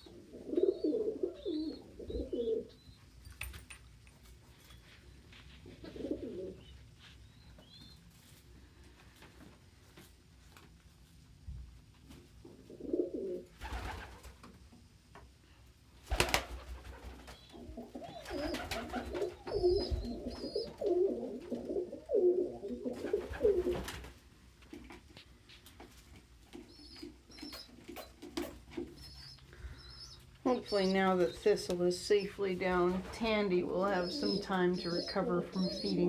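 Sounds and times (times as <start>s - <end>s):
pigeons cooing: 0.0s - 2.9s, 5.7s - 6.8s, 12.5s - 14.2s, 17.0s - 24.0s, 26.7s - 36.0s
young pigeons peeping: 0.0s - 3.5s, 4.6s - 9.2s, 12.4s - 14.4s, 16.1s - 36.0s.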